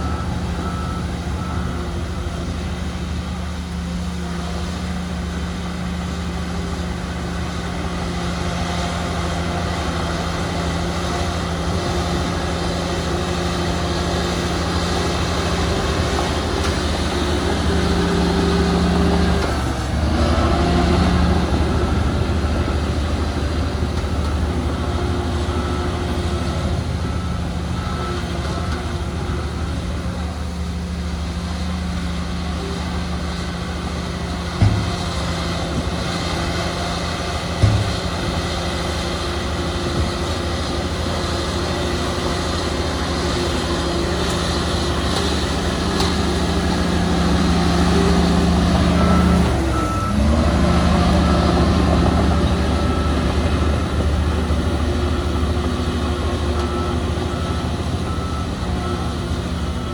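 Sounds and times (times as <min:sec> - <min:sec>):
diesel earthmoving machinery running: 0:00.0 - 0:59.9
faint reversing alarm beeps: 0:00.0 - 0:59.9.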